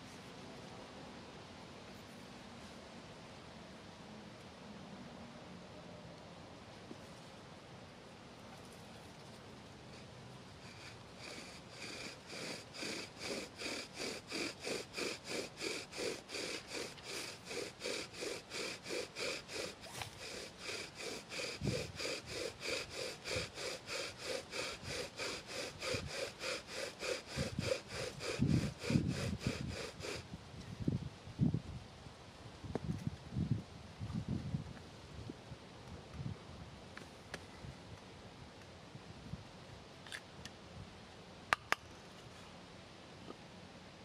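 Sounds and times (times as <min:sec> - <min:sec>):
bow drill sawing: 0:10.6 - 0:30.3.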